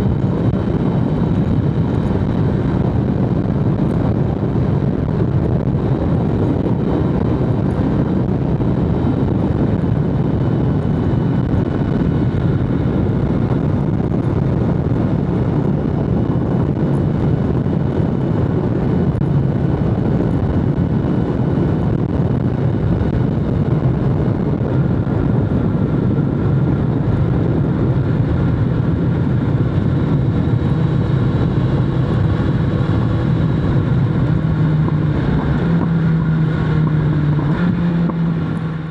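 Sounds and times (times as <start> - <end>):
motorcycle engine running: 0.0 - 38.9
wind and road noise: 0.0 - 38.9.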